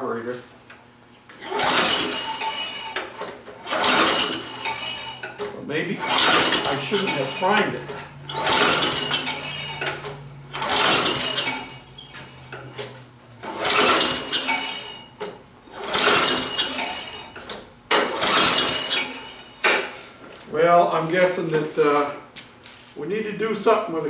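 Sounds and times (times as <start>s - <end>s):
lawn mower engine pull-start cranking: 1.3s - 20.0s.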